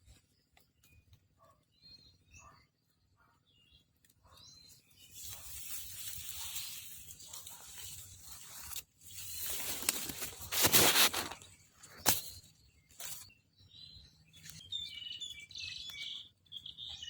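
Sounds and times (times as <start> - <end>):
faint bird chirps: 0.0 - 7.6, 11.1 - 17.0
rustling crackling noise: 5.0 - 13.3.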